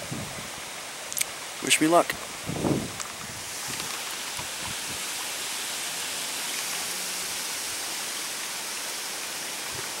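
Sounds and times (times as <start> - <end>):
water running in a brook: 0.0 - 10.0.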